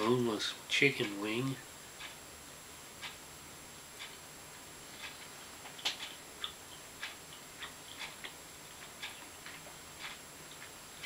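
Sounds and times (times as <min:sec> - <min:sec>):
steady light ticking: 0:00.0 - 0:11.0
faint wet chewing clicks: 0:05.0 - 0:11.0.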